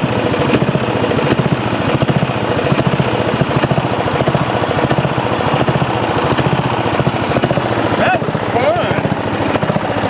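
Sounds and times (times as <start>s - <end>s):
lawn tractor engine running: 0.0s - 10.0s.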